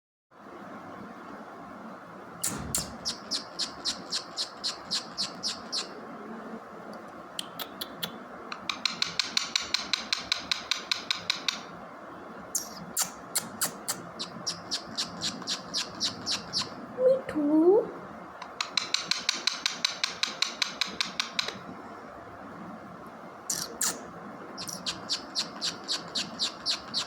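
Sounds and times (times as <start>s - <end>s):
steady background noise: 0.3s - 27.0s
parrot chirping: 2.4s - 6.0s, 7.4s - 11.7s, 12.6s - 16.9s, 23.5s - 27.0s.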